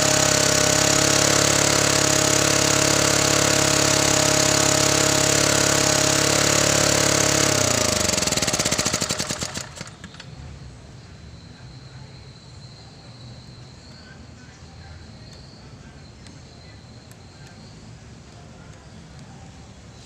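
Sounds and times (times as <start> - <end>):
portable generator engine running: 0.0 - 10.4.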